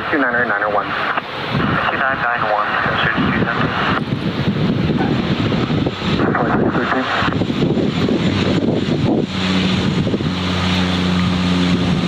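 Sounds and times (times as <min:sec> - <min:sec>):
radio chatter: 0:00.0 - 0:04.1, 0:06.1 - 0:07.4
airliner engine noise: 0:00.0 - 0:12.0
steady low hum: 0:00.0 - 0:12.0
wind buffeting microphone: 0:00.7 - 0:12.0.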